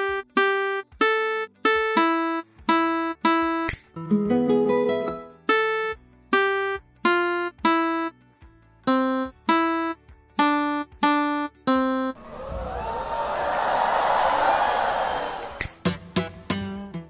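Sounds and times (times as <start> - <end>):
toy guitar electronic notes: 0.0 - 8.1, 8.9 - 12.1.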